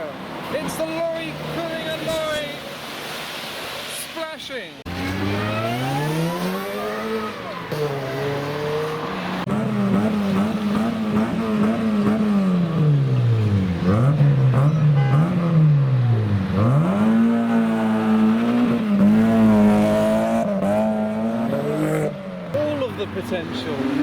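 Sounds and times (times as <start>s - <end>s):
car engine accelerating hard: 4.9s - 22.9s.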